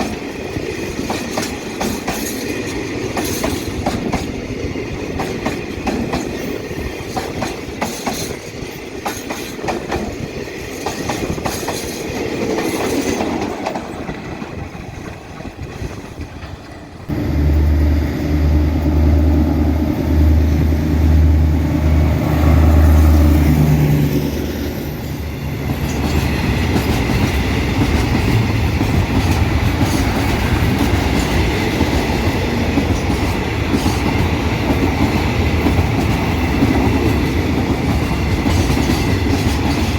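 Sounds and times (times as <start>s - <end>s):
train wheels clacking over rail joints: 0.0s - 17.8s, 25.8s - 39.9s
diesel locomotive engine rumbling: 13.3s - 39.9s.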